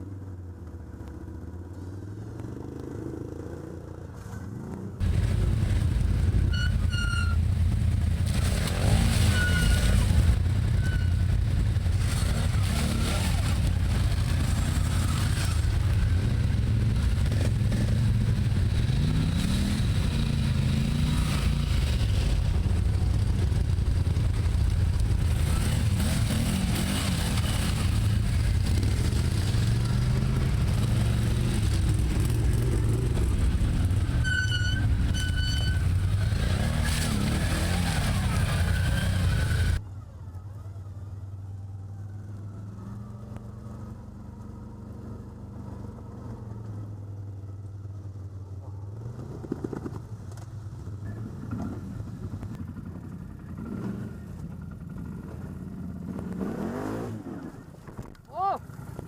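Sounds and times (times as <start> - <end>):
quiet steady engine hum: 0.0 - 59.0
atv engine revving: 5.0 - 39.8, 51.2 - 57.7.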